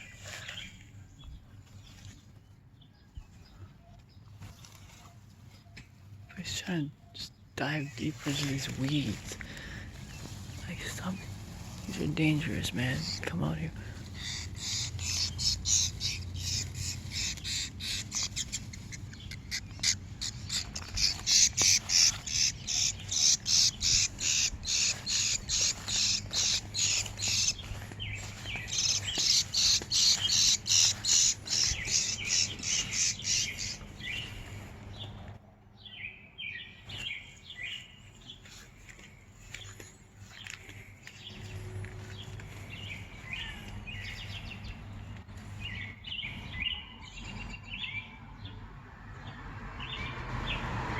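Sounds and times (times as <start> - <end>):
bird chirping: 0.0 - 48.6.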